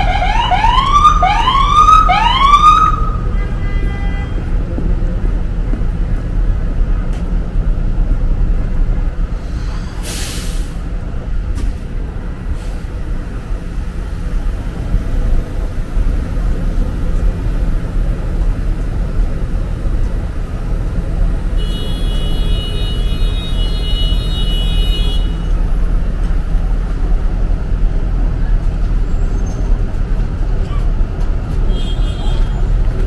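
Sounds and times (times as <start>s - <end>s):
street traffic rumbling: 0.0s - 33.0s
short sharp hiss: 9.4s - 10.9s.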